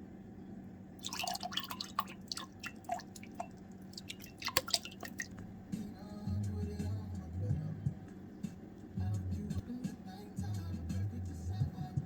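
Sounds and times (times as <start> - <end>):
steady low hum: 0.0 - 12.0
liquid dripping: 1.0 - 5.5.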